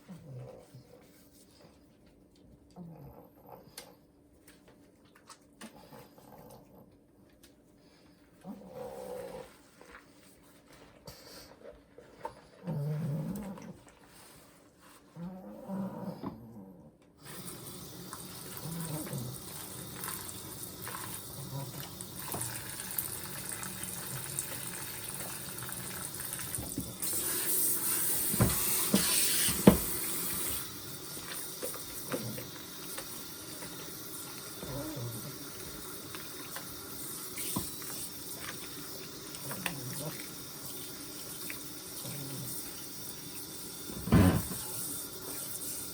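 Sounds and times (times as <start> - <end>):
water running into bath: 17.2 - 45.9.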